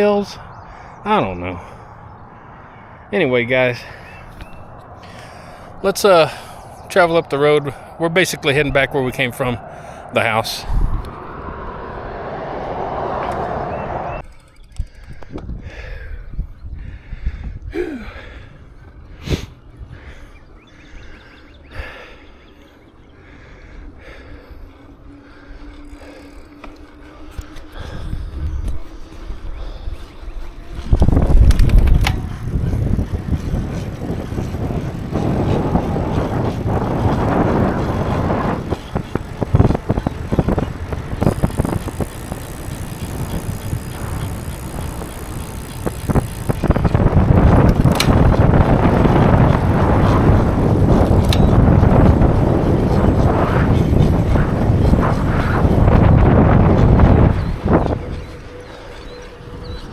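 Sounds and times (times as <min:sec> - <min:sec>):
bicycle tyre rumble: 0:00.0 - 0:59.9
wind buffeting microphone: 0:00.0 - 0:59.9
sharp clicks: 0:14.1 - 0:15.5, 0:30.9 - 0:32.8, 0:38.6 - 0:51.7.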